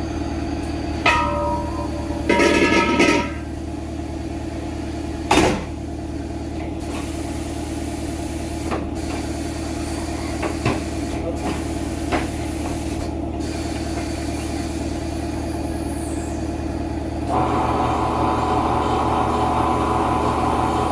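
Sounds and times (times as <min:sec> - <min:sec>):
machinery hum: 0:00.0 - 0:06.8.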